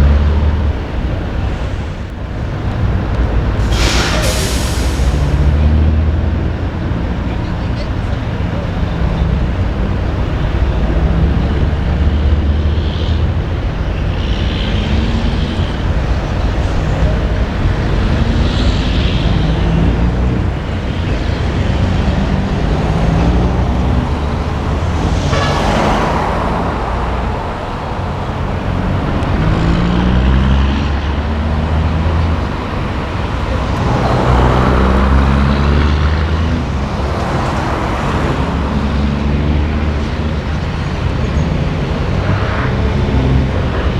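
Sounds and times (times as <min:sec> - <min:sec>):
diesel truck engines pulling away: 0:00.0 - 0:43.9
truck passing rush: 0:00.0 - 0:43.9
sharp hiss: 0:03.6 - 0:05.5, 0:24.0 - 0:28.8.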